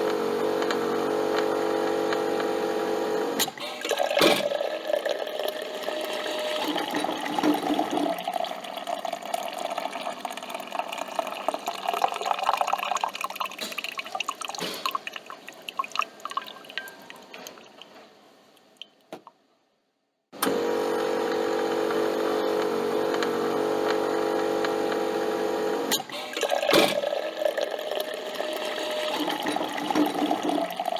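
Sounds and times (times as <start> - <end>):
coffee dripping into a cup: 3.9 - 17.9.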